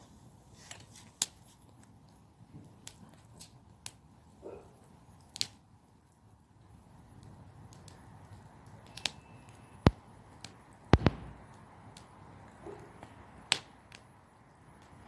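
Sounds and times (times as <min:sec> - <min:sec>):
low rumble of flames: 0:00.0 - 0:15.0
campfire crackling and popping: 0:00.2 - 0:15.0.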